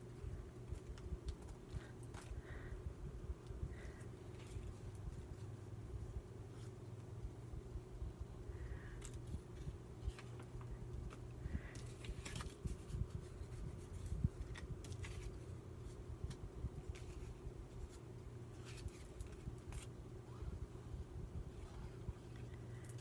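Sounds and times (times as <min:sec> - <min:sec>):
steady low hum: 0:00.0 - 0:23.0
paper rustling: 0:08.8 - 0:20.0.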